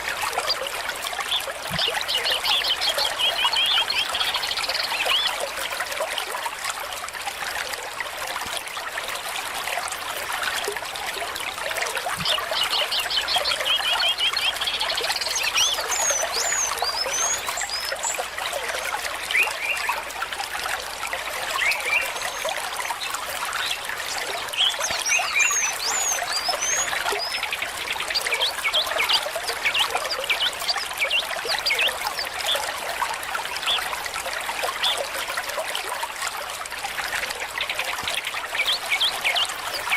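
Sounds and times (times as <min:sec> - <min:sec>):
stream trickling over stones: 0:00.0 - 0:39.9
birds chirping: 0:12.3 - 0:18.6, 0:23.6 - 0:32.5.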